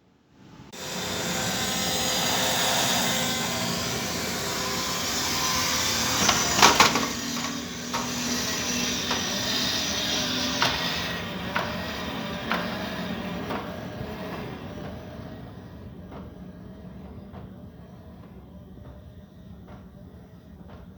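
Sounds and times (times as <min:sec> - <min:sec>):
toy truck motor whirring: 0:00.8 - 0:14.8.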